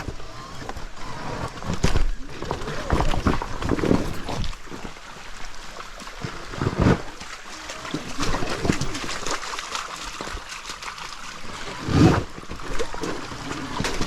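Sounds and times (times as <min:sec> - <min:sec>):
knocks and thumps: 0:01.8 - 0:07.5
water splashing and trickling: 0:02.2 - 0:14.0.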